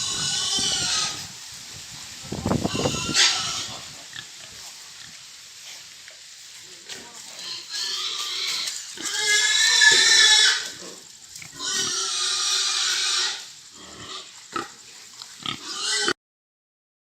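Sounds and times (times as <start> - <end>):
pigs squealing: 0.0 - 1.4, 2.4 - 4.4, 7.4 - 16.2
pigs grunting: 7.2 - 16.2.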